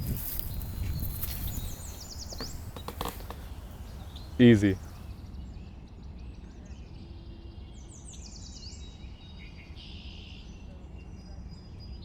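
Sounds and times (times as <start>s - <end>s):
small bird chirping: 0.0s - 5.2s.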